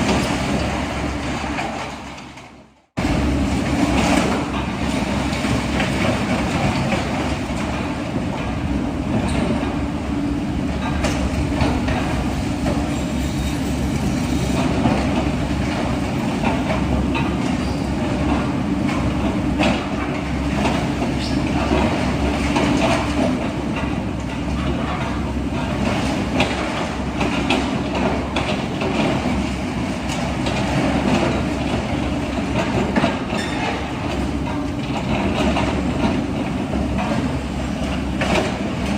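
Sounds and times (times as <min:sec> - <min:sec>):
diesel earthmover running: 0:00.0 - 0:38.9
metallic clanks and knocks: 0:10.7 - 0:12.9.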